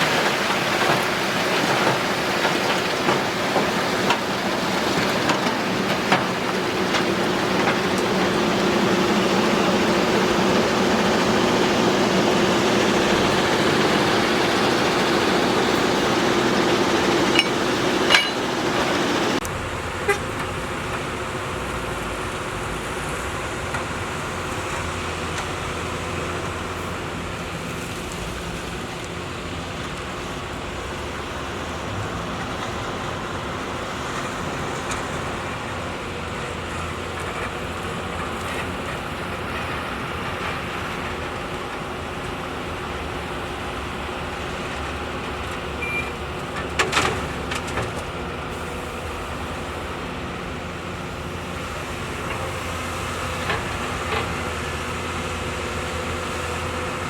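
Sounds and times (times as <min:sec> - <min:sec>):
diesel machinery engine hum: 0:00.0 - 0:57.0
metallic clanks: 0:13.5 - 0:19.4.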